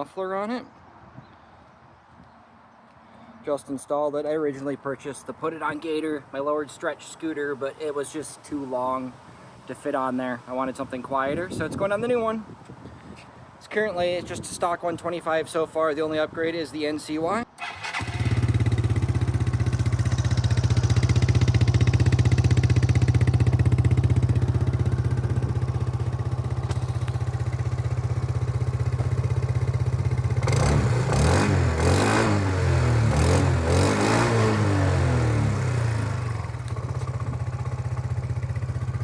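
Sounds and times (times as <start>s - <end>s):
scooter engine idling and revving: 17.6s - 39.0s.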